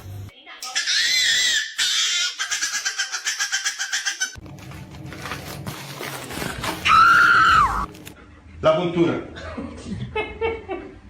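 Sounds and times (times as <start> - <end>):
cat yowling: 6.8 - 7.9.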